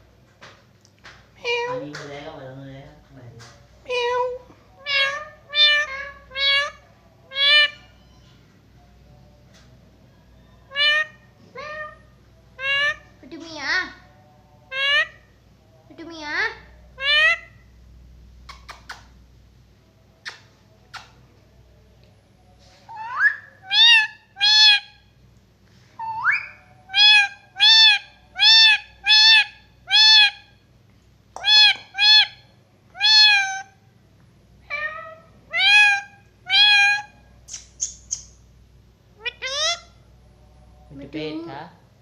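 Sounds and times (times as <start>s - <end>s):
parrot calling: 4.0s - 8.2s, 10.7s - 12.0s, 12.6s - 13.2s, 14.7s - 15.3s, 17.0s - 17.6s, 22.9s - 25.1s, 26.0s - 30.6s, 31.4s - 33.8s, 34.7s - 38.3s, 39.2s - 40.0s.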